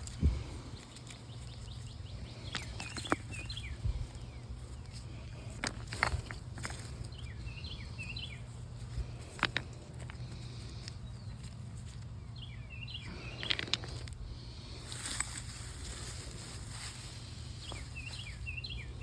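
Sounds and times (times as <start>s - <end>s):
footsteps on stones: 0.0s - 12.2s, 13.1s - 19.0s
low steady hum: 0.0s - 19.0s
bird chirping: 0.2s - 5.5s, 6.7s - 8.8s, 10.3s - 14.8s, 17.4s - 19.0s.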